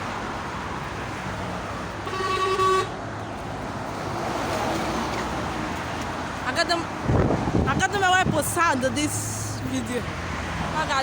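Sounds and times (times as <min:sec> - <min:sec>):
street traffic noise: 0:00.0 - 0:11.0
vehicle horn honk: 0:02.0 - 0:03.0.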